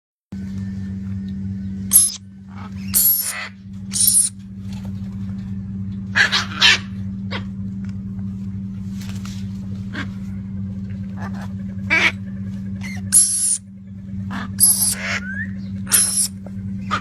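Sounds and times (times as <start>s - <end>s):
steady low hum: 0.3s - 17.0s
parrots squawking: 1.9s - 4.3s, 6.2s - 7.0s, 11.2s - 12.2s, 12.8s - 13.6s, 14.3s - 17.0s.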